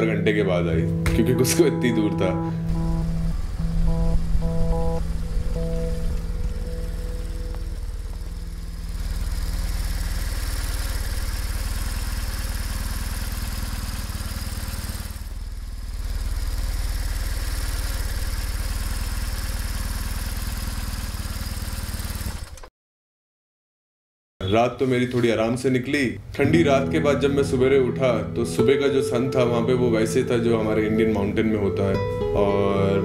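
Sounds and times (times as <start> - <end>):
motorcycle engine running: 2.6 - 22.7.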